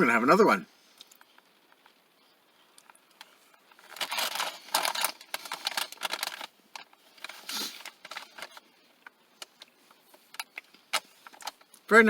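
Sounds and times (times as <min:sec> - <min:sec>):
cookie package rustling: 0:02.6 - 0:11.9.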